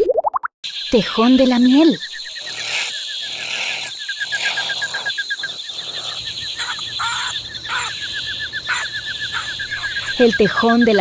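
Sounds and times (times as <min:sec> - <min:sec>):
insects trilling: 0:00.6 - 0:11.0.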